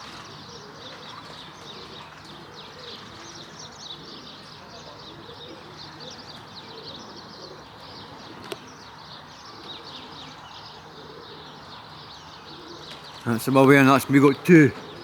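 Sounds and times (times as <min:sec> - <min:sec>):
faint pigeon cooing: 0:00.0 - 0:15.0
birds chirping: 0:13.2 - 0:15.0.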